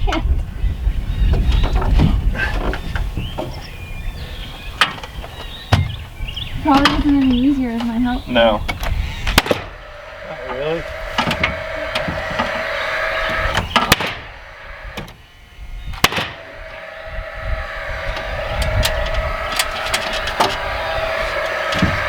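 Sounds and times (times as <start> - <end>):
motor running: 8.9 - 22.0.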